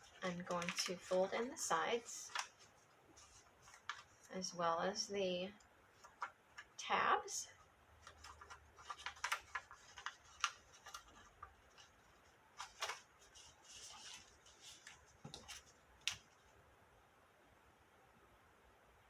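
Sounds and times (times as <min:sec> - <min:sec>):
soft paper rustles: 0:00.0 - 0:04.6, 0:05.5 - 0:16.6
cardstock folding clicks: 0:08.0 - 0:11.2.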